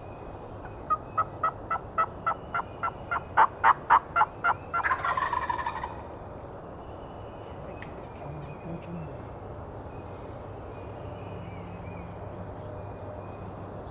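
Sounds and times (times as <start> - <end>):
turkey rattling gobble: 2.8 - 6.0
turkey yelps: 3.1 - 6.0.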